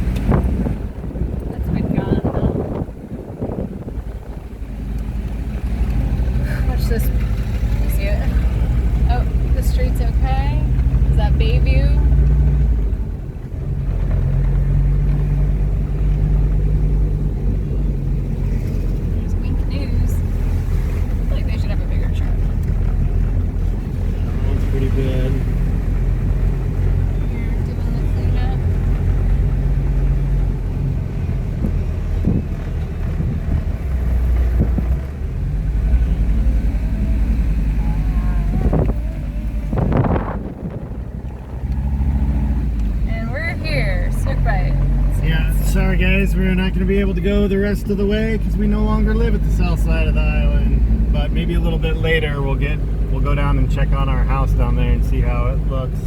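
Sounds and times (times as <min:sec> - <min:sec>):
wind on microphone: 0:00.0 - 0:05.0, 0:28.1 - 0:43.1
car engine droning: 0:00.0 - 0:56.0
road noise: 0:00.0 - 0:56.0.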